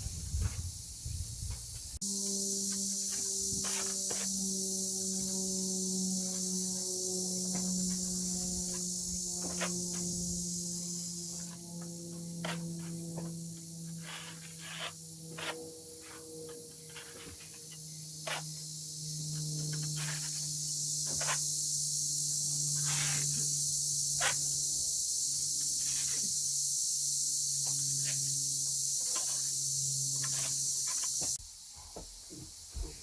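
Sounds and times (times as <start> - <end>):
low even hum: 0.0 - 24.0.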